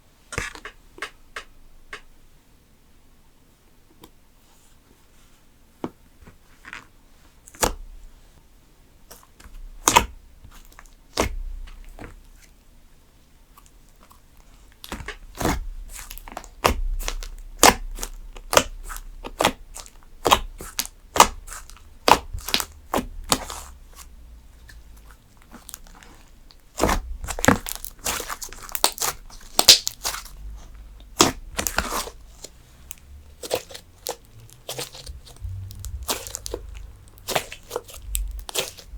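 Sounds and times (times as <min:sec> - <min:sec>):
slime crackling and popping: 0:14.8 - 0:24.1, 0:24.7 - 0:38.9.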